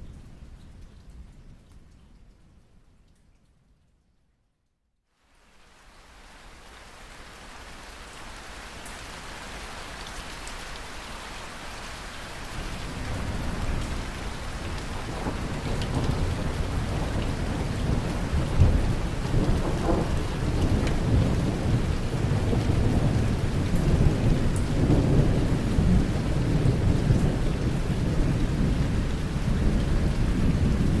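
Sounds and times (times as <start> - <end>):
steady rain: 0.0 - 31.0
rolling thunder: 14.6 - 31.0.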